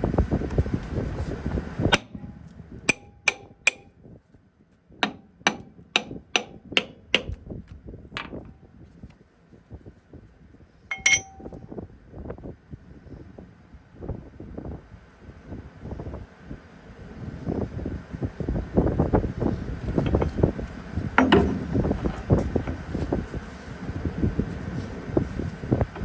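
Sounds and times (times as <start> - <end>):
loud steady noise: 1.9 - 3.8
hammer striking steel: 2.0 - 3.9, 5.0 - 7.4, 10.9 - 11.6.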